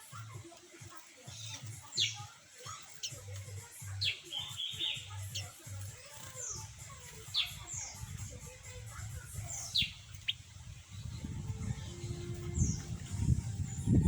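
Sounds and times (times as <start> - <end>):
small birds chirping: 0.0 - 14.0
low rumbling noise: 10.8 - 14.0.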